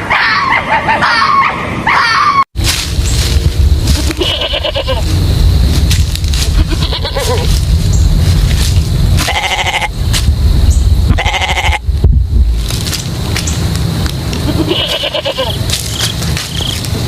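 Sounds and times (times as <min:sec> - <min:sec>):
steady low rumble: 0:02.6 - 0:17.0
animal calling: 0:06.5 - 0:07.5.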